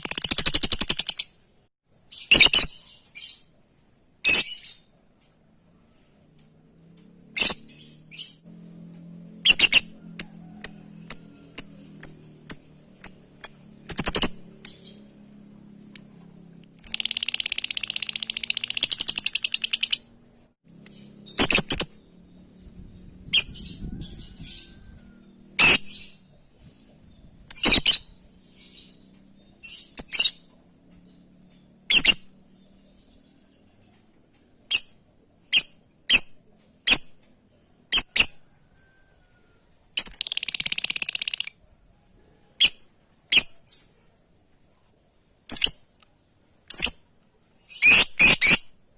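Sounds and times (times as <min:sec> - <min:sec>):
shrill bird calls: 0:47.6 - 0:48.7.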